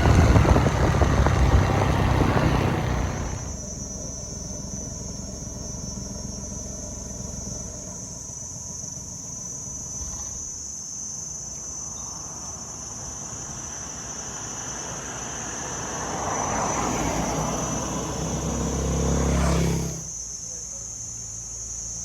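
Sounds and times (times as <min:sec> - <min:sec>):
vehicle engine passing: 0:00.0 - 0:08.0, 0:12.1 - 0:20.1
insects buzzing: 0:00.0 - 0:22.0.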